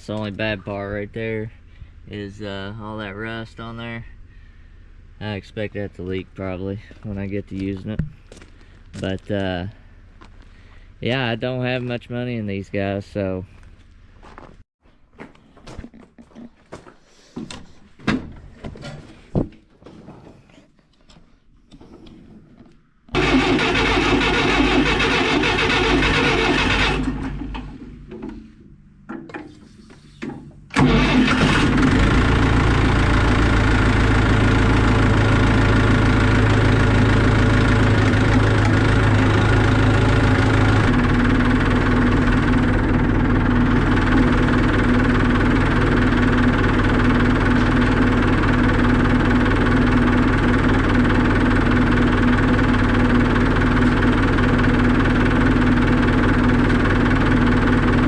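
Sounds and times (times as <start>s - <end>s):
tractor engine running: 23.1s - 28.6s, 30.7s - 58.0s.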